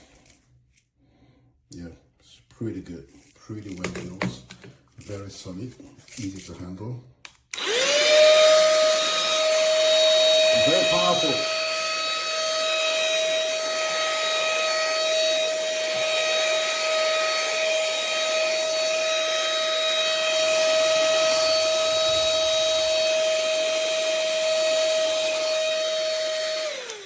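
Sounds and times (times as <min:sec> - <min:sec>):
handheld vacuum running: 0:07.5 - 0:27.0
vacuum motor spinning down: 0:07.6 - 0:27.0.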